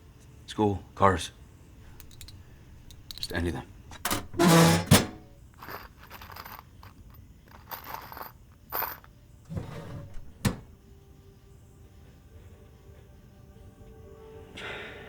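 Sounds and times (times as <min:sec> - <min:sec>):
tools scraping and clinking: 0:01.8 - 0:10.7
soft music with held notes: 0:10.8 - 0:15.0.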